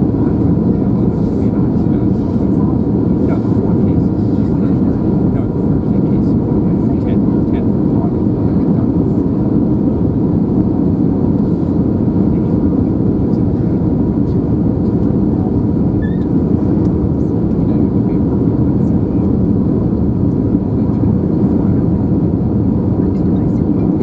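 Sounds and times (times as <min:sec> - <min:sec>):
airliner cabin rumble: 0:00.0 - 0:24.0.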